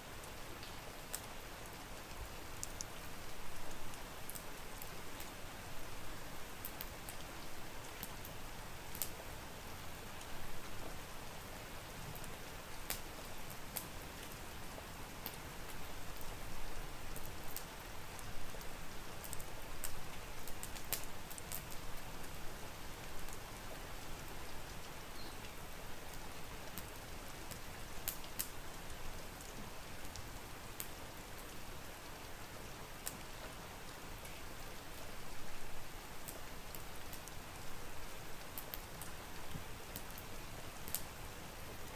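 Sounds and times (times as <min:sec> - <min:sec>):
steady rain: 0:00.0 - 0:41.9
wood fire crackling and popping: 0:00.6 - 0:01.4, 0:06.6 - 0:09.2, 0:12.8 - 0:14.4, 0:17.1 - 0:22.0, 0:25.4 - 0:31.0, 0:36.2 - 0:37.6, 0:38.4 - 0:41.2.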